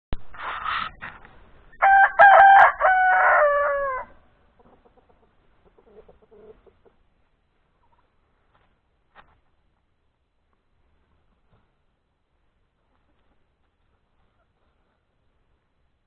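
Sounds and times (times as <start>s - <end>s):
rooster crowing: 1.8s - 4.3s
soft hen clucks: 4.4s - 8.2s, 12.8s - 15.2s.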